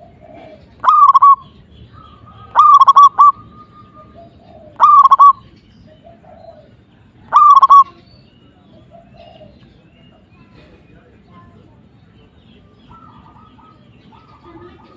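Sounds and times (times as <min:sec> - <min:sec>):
dove cooing: 0:00.0 - 0:08.0, 0:08.7 - 0:09.8, 0:12.9 - 0:14.9.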